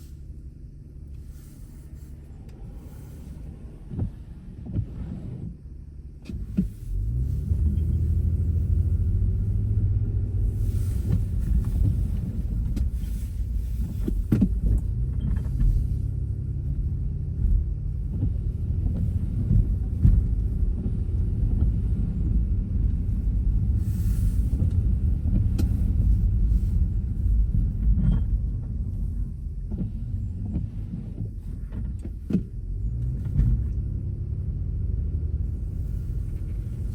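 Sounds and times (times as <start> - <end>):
tyres and engine rumble on snow: 0.0 - 36.9.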